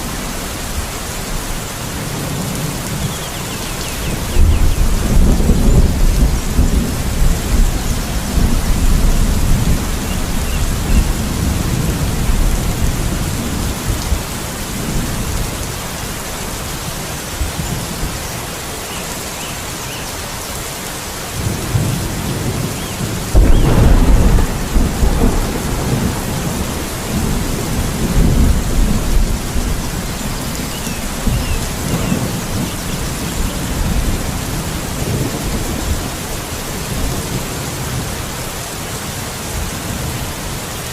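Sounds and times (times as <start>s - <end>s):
steady rain: 0.0s - 40.9s
thunder rumbling: 3.8s - 15.7s, 21.4s - 38.2s.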